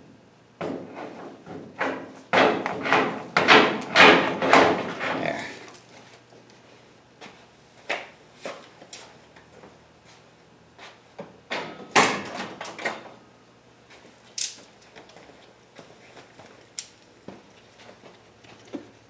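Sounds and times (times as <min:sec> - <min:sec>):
tools and metal parts clicking: 0:14.4 - 0:14.7.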